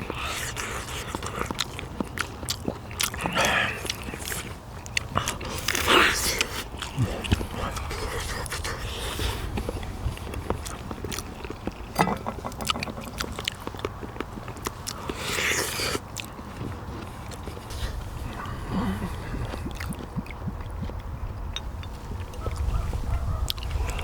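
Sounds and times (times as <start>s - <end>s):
person chewing and gnawing bones: 0.0s - 24.0s.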